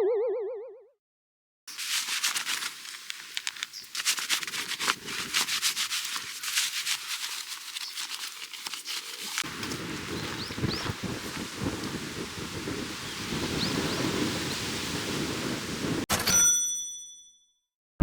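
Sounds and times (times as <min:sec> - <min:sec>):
crackling and rustling: 0:01.7 - 0:12.7.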